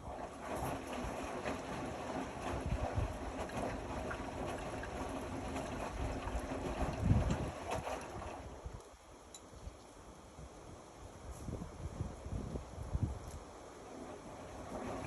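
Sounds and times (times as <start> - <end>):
washing machine drum turning: 0.0 - 8.6
water and laundry sloshing: 0.0 - 9.0, 12.4 - 15.0.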